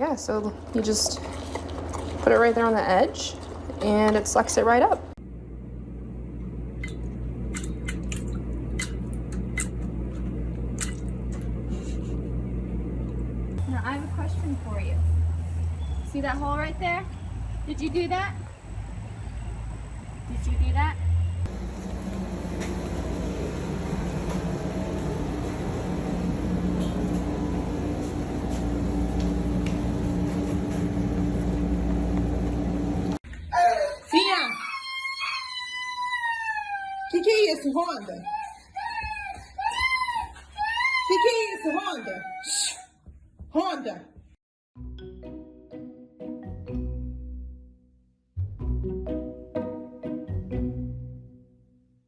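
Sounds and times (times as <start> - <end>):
steady mechanical hum: 0.0 - 34.4.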